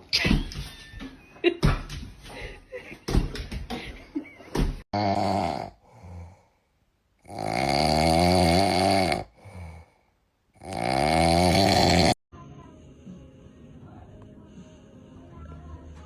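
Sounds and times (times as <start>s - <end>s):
loud snoring: 5.0s - 6.4s, 7.2s - 10.0s, 10.6s - 12.2s
quiet breaths: 12.6s - 16.0s.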